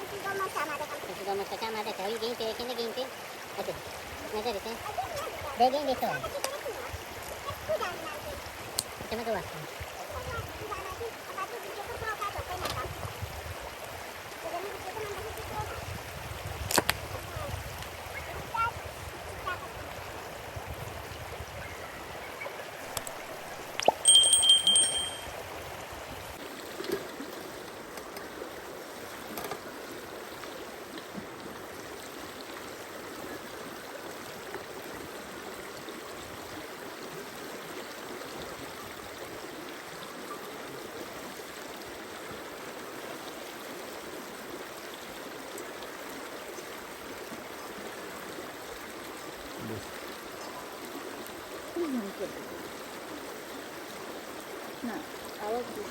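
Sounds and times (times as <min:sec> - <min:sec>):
stream running: 0:00.0 - 0:55.9
high ringing tone: 0:23.9 - 0:25.4.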